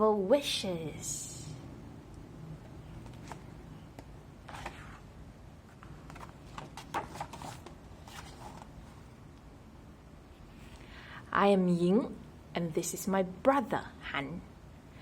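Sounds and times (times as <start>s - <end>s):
book pages rustling: 2.9s - 9.1s.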